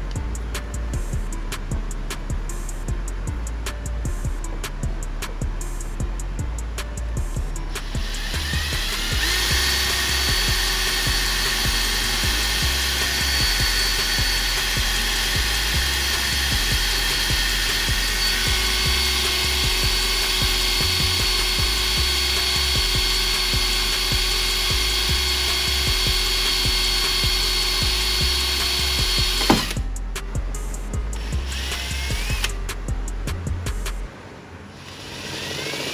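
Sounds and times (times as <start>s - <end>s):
background music with steady beat: 0.0s - 34.4s
electric drill motor whining: 7.5s - 33.3s, 34.8s - 35.9s.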